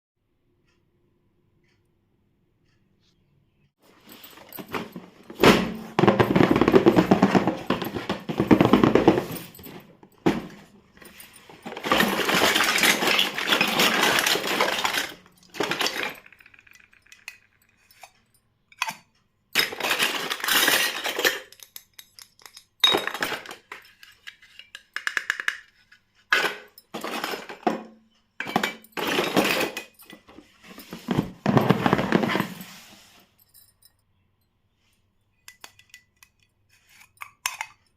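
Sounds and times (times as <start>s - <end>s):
packaging rustling: 3.9s - 16.3s
small plastic clicks and clinks: 11.0s - 30.5s, 35.4s - 37.9s.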